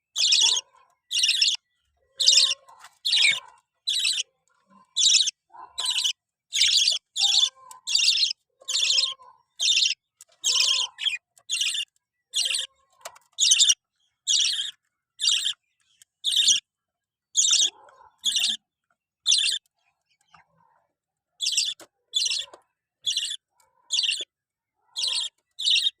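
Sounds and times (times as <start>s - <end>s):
lovebirds chirping: 0.0s - 16.7s, 17.4s - 20.7s, 21.4s - 26.0s.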